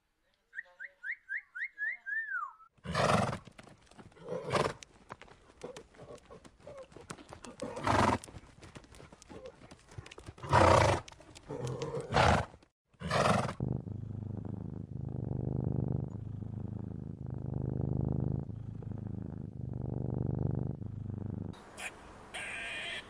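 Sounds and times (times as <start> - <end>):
cat purring: 13.4 - 21.6
zebras calling harshly: 21.8 - 23.0.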